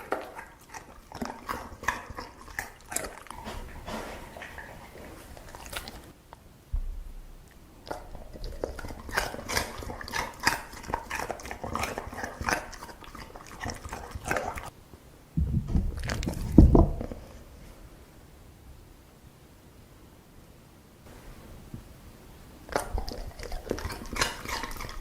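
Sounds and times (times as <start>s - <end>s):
dog crunching food: 0.0s - 6.2s, 7.5s - 14.7s, 15.9s - 17.3s, 22.6s - 25.0s
low rumble with thump: 6.7s - 7.6s, 15.4s - 17.2s.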